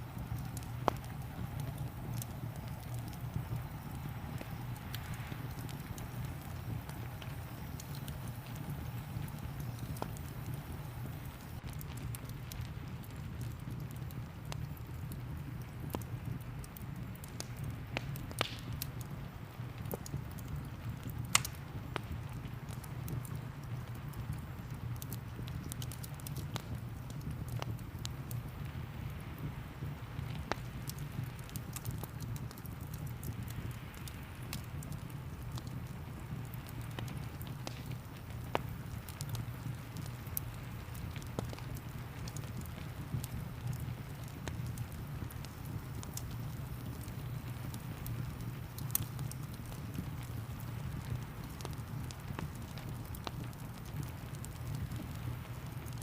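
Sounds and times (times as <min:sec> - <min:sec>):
steady low rumble: 0:00.0 - 0:25.7
fire crackling and popping: 0:00.0 - 0:56.0
rain: 0:00.0 - 0:56.0.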